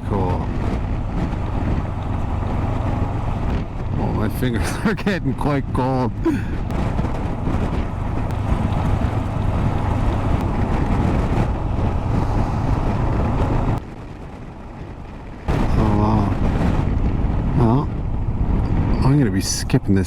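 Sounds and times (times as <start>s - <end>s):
motorcycle engine running: 0.0s - 4.3s, 6.7s - 13.8s
wind rushing over microphone: 0.0s - 20.0s.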